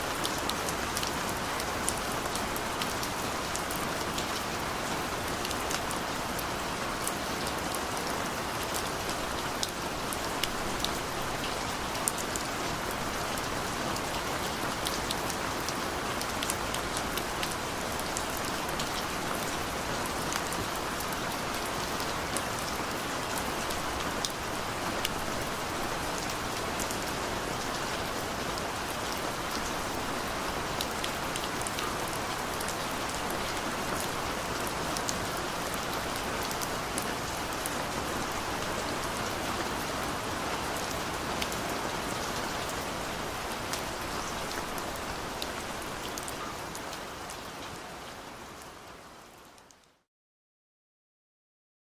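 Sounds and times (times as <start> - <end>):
steady rain hiss: 0.0 - 49.8.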